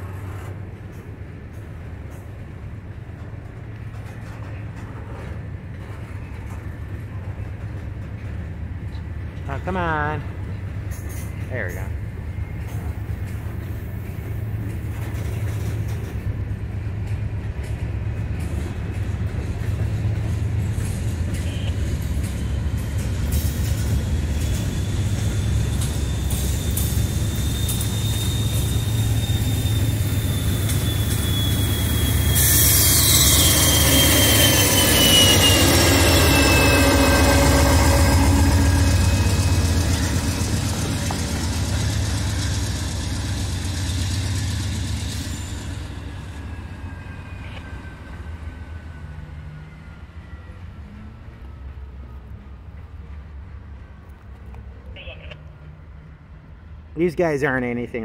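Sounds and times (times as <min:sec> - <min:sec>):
train wheels rumbling on rail: 0:00.0 - 0:57.9
diesel locomotives: 0:00.0 - 0:58.0
high-pitched wheel squeal: 0:23.7 - 0:40.9.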